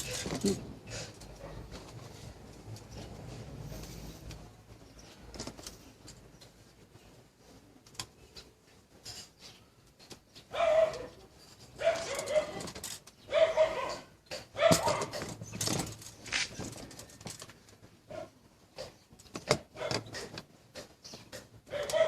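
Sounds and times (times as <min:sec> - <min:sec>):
dog barking: 0:10.5 - 0:11.2, 0:11.8 - 0:12.6, 0:13.3 - 0:15.2, 0:19.8 - 0:20.3, 0:21.7 - 0:22.0.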